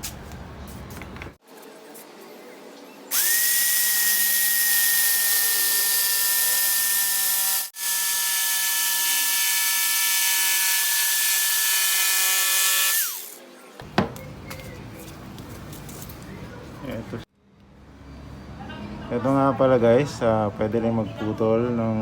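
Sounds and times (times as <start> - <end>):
electric jigsaw cutting wood: 3.1 - 13.4.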